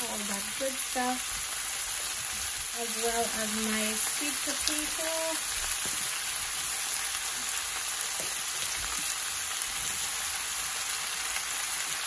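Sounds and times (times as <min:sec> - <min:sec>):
oil sizzling in a wok: 0:00.0 - 0:12.0.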